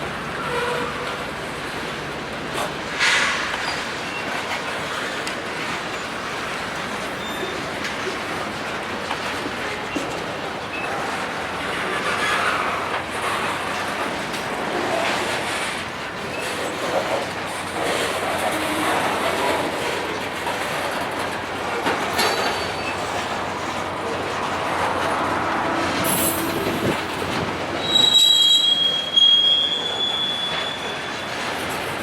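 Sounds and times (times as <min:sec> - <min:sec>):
train cars rolling on rails: 0:00.0 - 0:32.0
high-pitched wheel squeal: 0:25.6 - 0:31.7.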